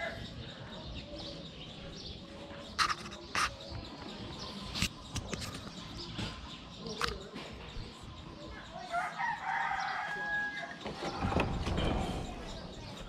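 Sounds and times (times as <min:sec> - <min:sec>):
farmyard background noise: 0:00.0 - 0:13.0.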